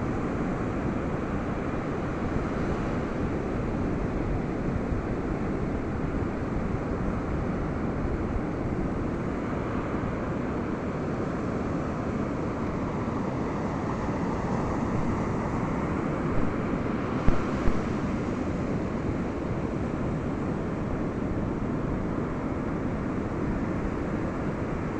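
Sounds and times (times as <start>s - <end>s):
ocean surf on a beach: 0.0s - 24.9s
wind on microphone: 14.1s - 19.3s.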